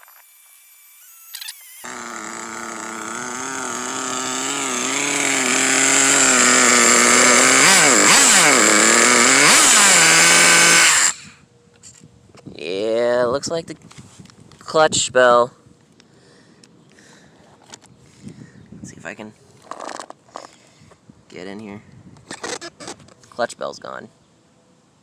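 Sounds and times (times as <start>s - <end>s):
nitro rc engine revving: 0.0s - 11.4s, 22.3s - 23.0s.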